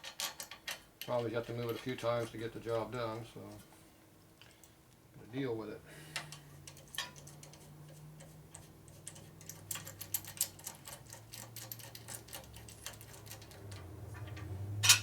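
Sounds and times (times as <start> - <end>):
hand tools clicking on metal: 6.2 - 15.0.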